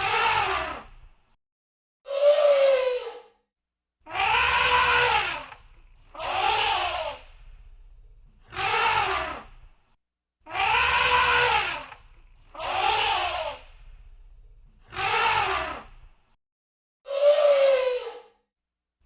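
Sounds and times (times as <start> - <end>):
elephant trumpeting: 4.1 - 7.2, 8.5 - 9.5, 10.5 - 13.6, 14.9 - 15.9
low rumble: 7.2 - 8.4, 13.7 - 14.8.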